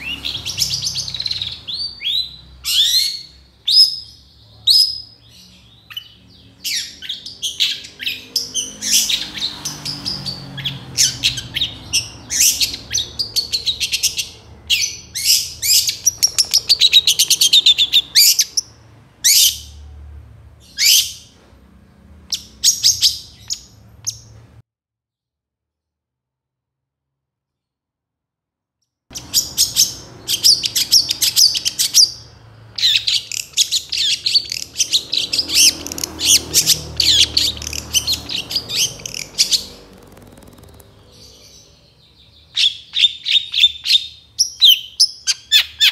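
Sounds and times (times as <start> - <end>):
shrike singing: 29.1 - 43.9.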